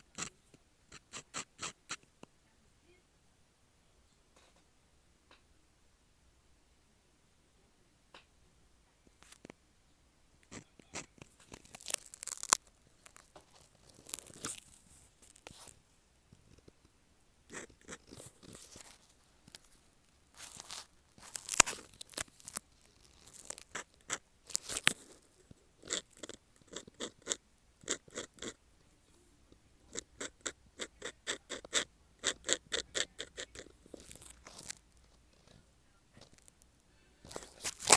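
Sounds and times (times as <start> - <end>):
pen nib scratching on paper: 0.0 - 2.1, 10.4 - 15.8, 17.5 - 19.8, 20.4 - 28.6, 29.5 - 36.6, 37.3 - 37.9.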